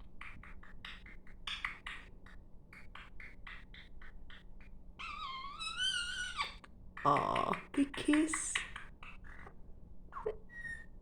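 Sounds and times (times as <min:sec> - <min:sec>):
parrot clicking and chirping: 0:03.0 - 0:09.5.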